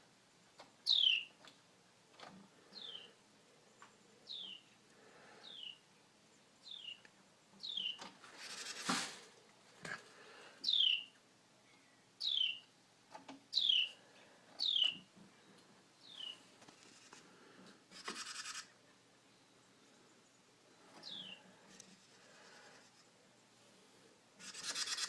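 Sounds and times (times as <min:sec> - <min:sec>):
bird calling falling notes: 0:14.6 - 0:15.0.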